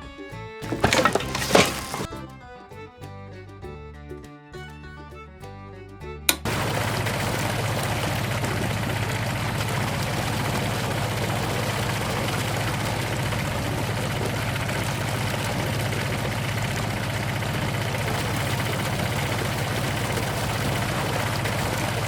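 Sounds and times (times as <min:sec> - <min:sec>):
small engine idling: 0:06.5 - 0:22.0.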